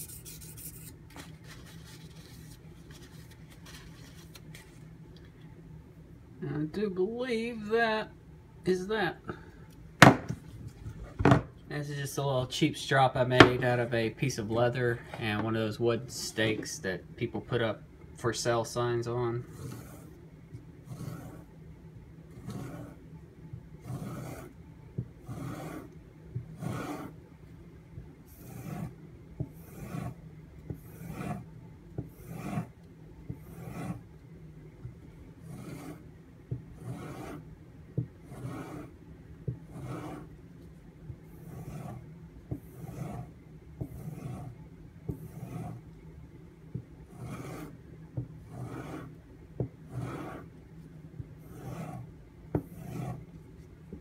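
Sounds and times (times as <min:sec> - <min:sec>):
blade stropping on leather: 0:20.9 - 0:21.5, 0:22.4 - 0:23.0, 0:23.8 - 0:24.5, 0:25.3 - 0:25.9, 0:26.6 - 0:27.1, 0:28.3 - 0:29.0, 0:29.6 - 0:30.2, 0:30.8 - 0:31.4, 0:32.2 - 0:32.7, 0:33.4 - 0:34.0, 0:35.5 - 0:36.0, 0:36.8 - 0:37.4, 0:38.3 - 0:38.9, 0:39.7 - 0:40.3, 0:41.4 - 0:42.0, 0:42.7 - 0:44.5, 0:45.1 - 0:45.8, 0:47.2 - 0:47.8, 0:48.5 - 0:49.1, 0:51.4 - 0:52.0, 0:52.6 - 0:53.3.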